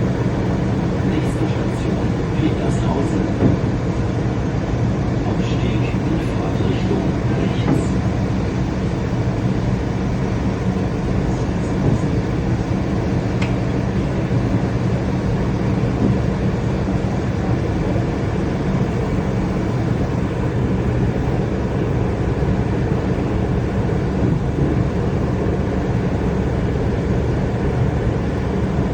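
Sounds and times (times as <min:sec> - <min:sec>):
train rumbling: 0:00.0 - 0:28.9.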